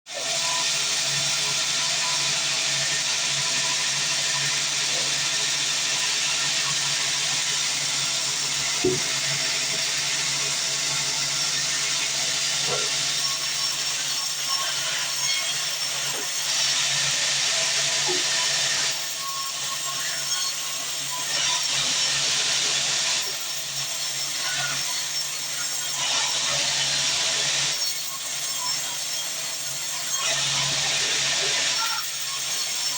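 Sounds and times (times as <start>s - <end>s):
band saw cutting wood: 0.1s - 32.9s
bandsaw hissing: 3.4s - 14.0s
short knock: 8.8s - 9.1s.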